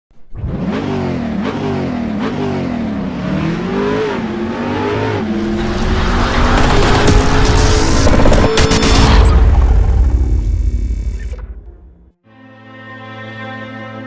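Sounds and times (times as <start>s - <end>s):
car engine revving: 0.2s - 10.4s.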